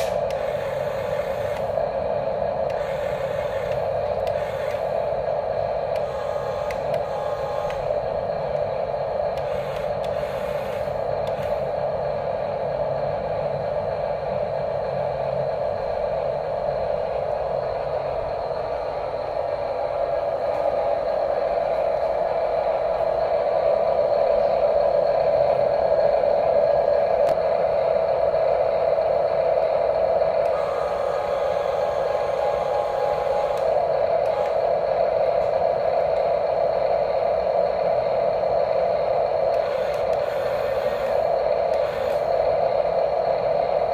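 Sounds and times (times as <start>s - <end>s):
small electric motors whirring: 0.0s - 1.8s, 2.7s - 5.0s, 6.0s - 7.9s, 9.4s - 11.7s, 30.4s - 34.7s, 39.5s - 42.5s.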